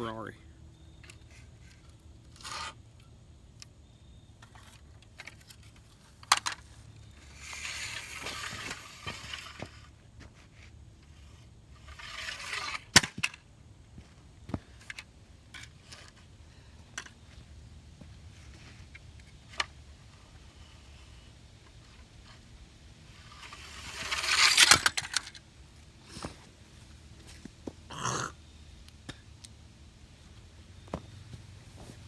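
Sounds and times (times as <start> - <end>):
toy truck scraping against car: 1.1 - 2.9, 4.4 - 13.3, 23.1 - 25.4.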